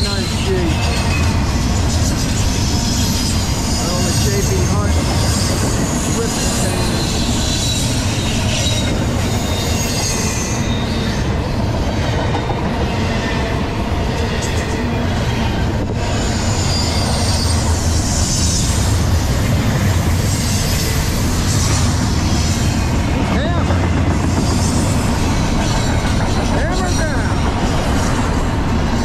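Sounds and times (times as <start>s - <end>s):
high wheel squeals: 0.0s - 11.5s, 16.0s - 19.0s.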